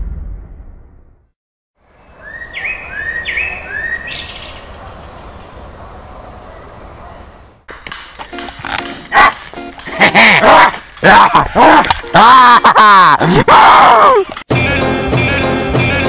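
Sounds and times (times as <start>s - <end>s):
bird chirping whistles: 2.0s - 4.6s.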